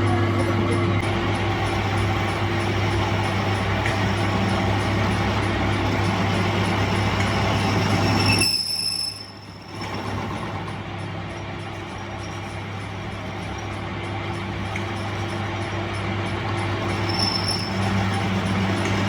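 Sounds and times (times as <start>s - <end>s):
metalworking machinery running: 0.0s - 19.0s
high squeal: 1.2s - 10.7s, 16.8s - 19.0s.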